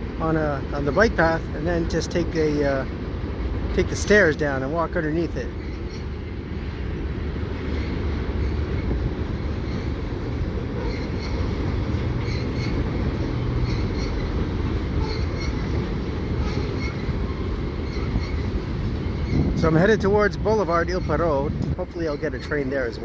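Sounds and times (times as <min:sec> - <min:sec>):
freight cars rolling: 0:00.0 - 0:23.0
high wheel squeaks: 0:07.6 - 0:20.1.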